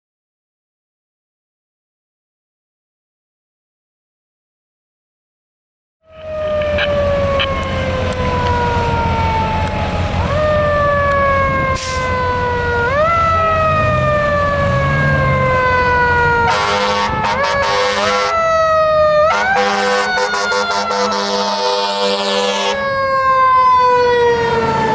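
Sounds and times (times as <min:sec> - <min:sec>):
fire engine siren wailing: 0:06.0 - 0:24.9
fast pulsing siren tone: 0:06.1 - 0:24.9
truck engine drone: 0:06.1 - 0:24.9.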